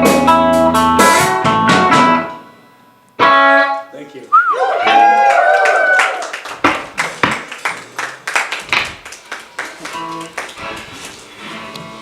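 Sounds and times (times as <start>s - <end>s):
audience clapping: 4.8s - 11.3s.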